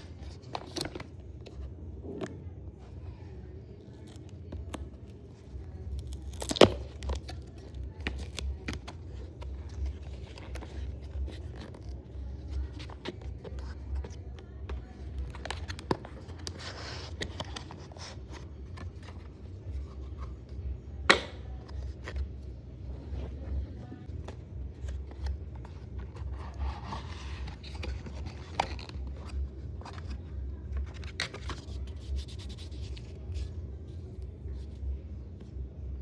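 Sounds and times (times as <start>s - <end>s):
packaging clicks and scrapes: 3.9s - 20.2s, 23.1s - 33.5s
packaging rustling or tearing: 5.9s - 8.8s.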